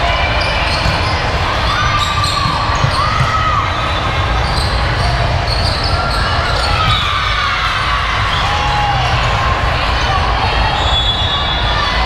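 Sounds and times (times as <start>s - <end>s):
crowd chatter: 0.0s - 12.0s
sneakers squeaking on floor: 0.4s - 7.2s.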